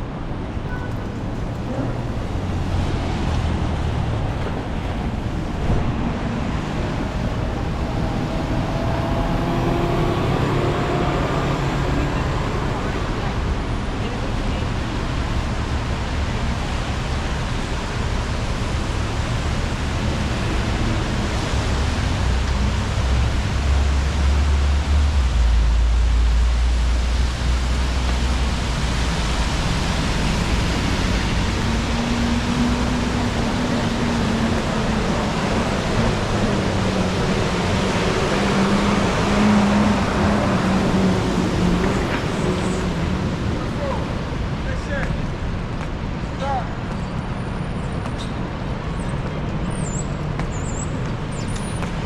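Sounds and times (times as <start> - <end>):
deep vehicle rumble: 0.0 - 47.0
low engine hum: 0.0 - 47.0
tyres hissing on wet pavement: 12.4 - 45.3.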